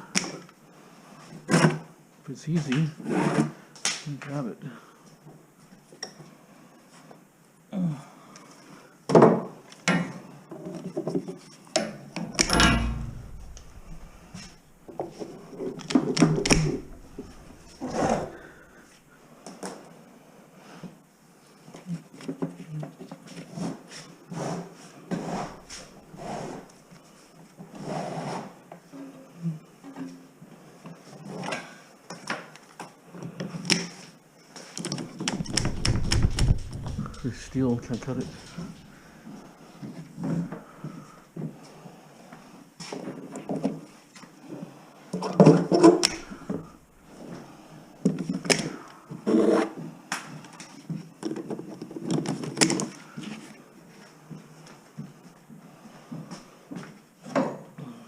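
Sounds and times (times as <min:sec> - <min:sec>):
heavy thump: 0:12.4 - 0:15.4, 0:16.2 - 0:18.4, 0:35.4 - 0:38.8
knocks and clatter: 0:12.4 - 0:18.4, 0:35.2 - 0:38.8
wire cutters clicking and snapping: 0:12.4 - 0:18.4, 0:46.0 - 0:46.7
wire rustling: 0:12.4 - 0:18.6, 0:35.0 - 0:39.0.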